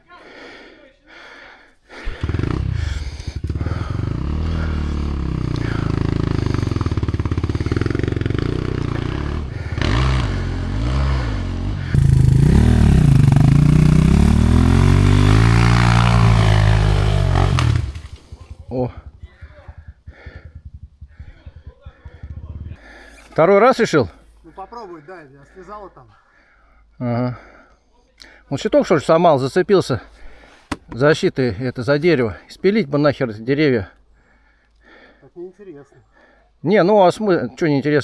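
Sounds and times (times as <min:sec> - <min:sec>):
motorcycle engine revving: 0:02.0 - 0:24.2.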